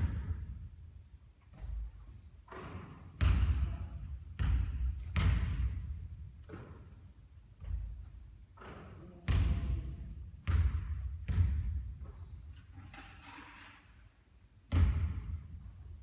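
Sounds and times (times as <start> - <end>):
basketball bouncing on gym floor: 0.0 - 0.7, 1.5 - 7.0, 7.6 - 12.5, 14.7 - 15.8.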